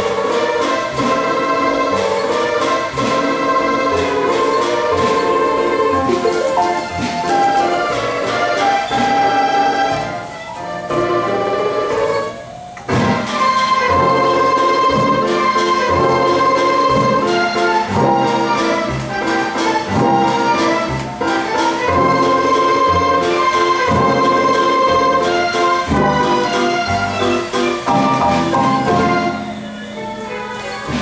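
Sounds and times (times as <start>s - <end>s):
mechanical orchestra playing: 0.0s - 31.0s.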